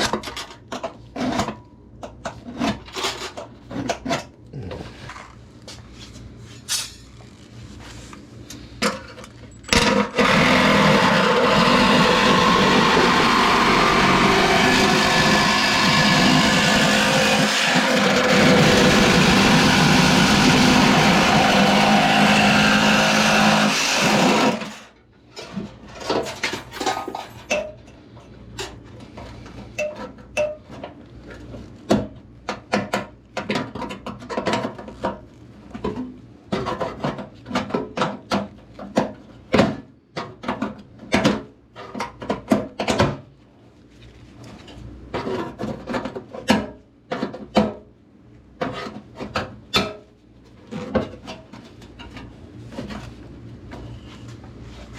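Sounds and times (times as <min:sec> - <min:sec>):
power tool cutting sheet metal: 0:09.8 - 0:24.9.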